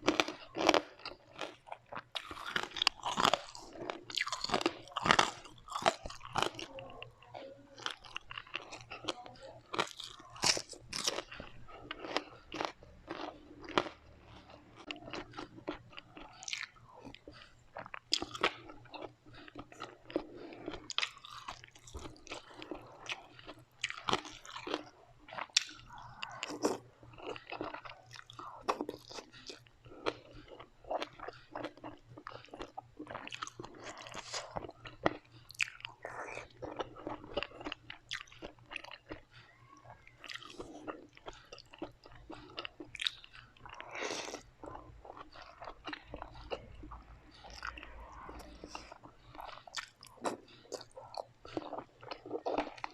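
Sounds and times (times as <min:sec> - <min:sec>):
person chewing crispy food: 0:00.0 - 0:52.9.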